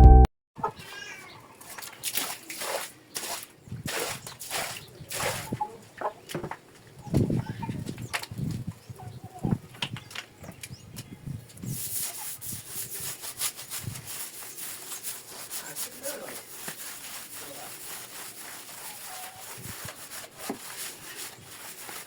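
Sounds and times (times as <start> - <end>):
quick scraping strokes: 11.7 - 22.0.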